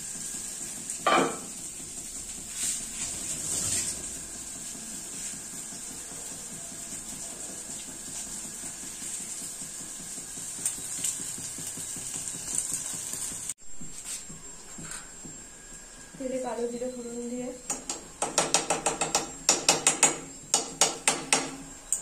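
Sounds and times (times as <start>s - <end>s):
onions sizzling in oil: 0.0s - 13.6s.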